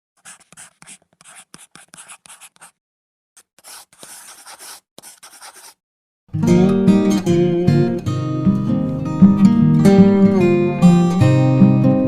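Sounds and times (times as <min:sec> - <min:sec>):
faint scratching strokes: 0:00.2 - 0:02.8, 0:03.4 - 0:05.8.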